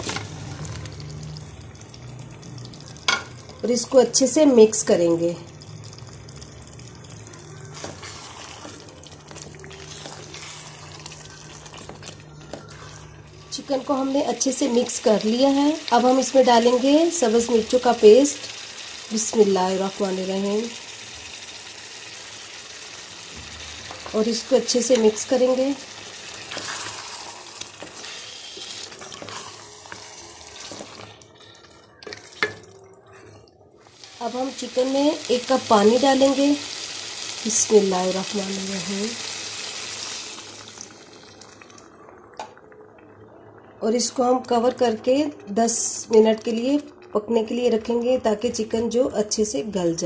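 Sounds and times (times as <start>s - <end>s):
chicken sizzling in hot oil: 0.0s - 32.6s, 33.9s - 41.8s
wooden spoon scraping pot: 7.8s - 8.9s, 26.4s - 31.2s.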